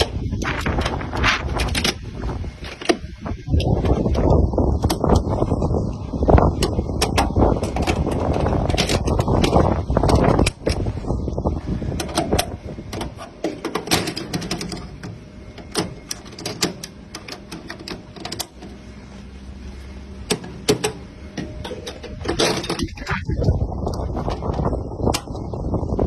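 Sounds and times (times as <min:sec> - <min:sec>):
steady low hum: 0:00.0 - 0:26.0
sharp metal latch clicks: 0:12.0 - 0:18.6, 0:20.3 - 0:23.0.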